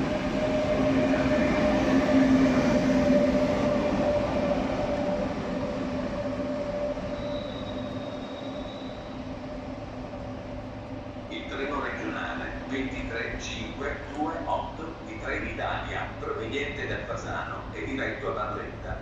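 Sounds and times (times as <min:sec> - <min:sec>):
train cars rumbling: 0:00.0 - 0:19.0
train wheels squealing: 0:06.2 - 0:09.8.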